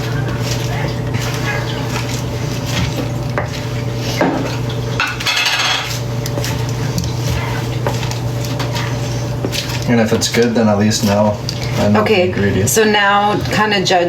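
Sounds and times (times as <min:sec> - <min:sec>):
lettuce rustling: 0:00.0 - 0:04.9
tongs clicking and scraping bowl: 0:00.0 - 0:13.7.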